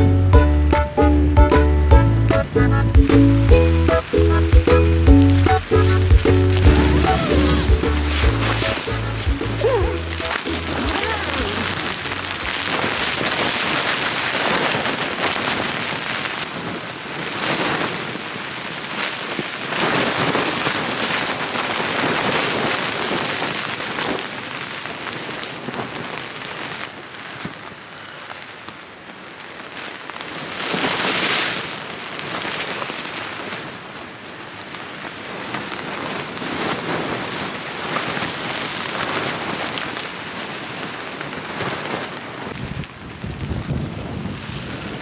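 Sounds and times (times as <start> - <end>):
strong gusting wind: 5.2 - 24.4, 35.0 - 45.0.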